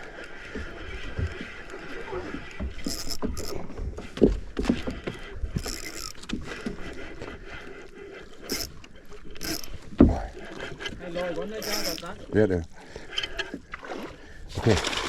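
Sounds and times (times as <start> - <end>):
fishing reel being cranked: 2.7 - 3.7, 5.6 - 6.8, 8.4 - 9.8, 11.4 - 12.2.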